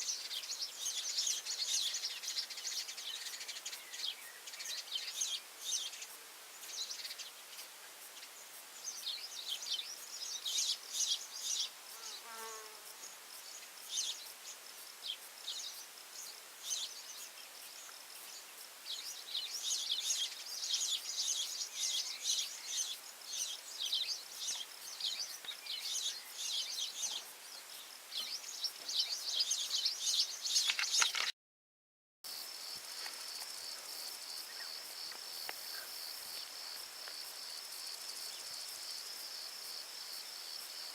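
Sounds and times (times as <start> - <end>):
birds chirping: 0.0 - 12.3, 13.0 - 31.3, 33.3 - 38.7
cricket trilling: 15.5 - 31.3.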